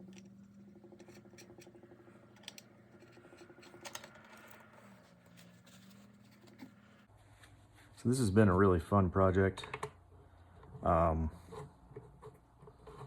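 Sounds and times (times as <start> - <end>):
low steady hum: 0.0 - 7.9.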